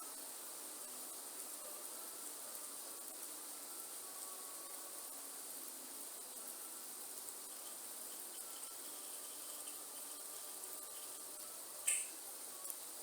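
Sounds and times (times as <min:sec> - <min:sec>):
steady rain falling: 0:00.0 - 0:13.0
high-pitched insect drone: 0:06.1 - 0:12.7
faint short tonal calls: 0:11.8 - 0:12.2.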